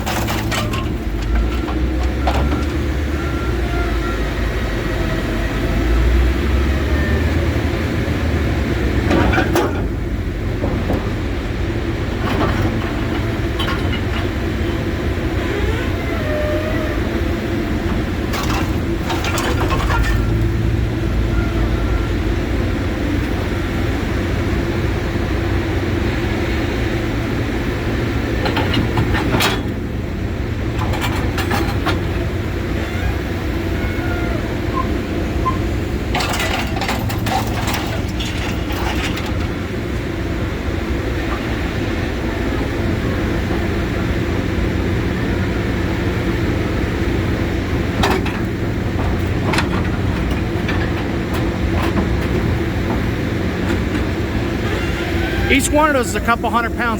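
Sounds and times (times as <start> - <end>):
metal clanking and scraping: 0.0 - 2.8, 12.2 - 14.8, 17.9 - 20.6, 36.1 - 39.5.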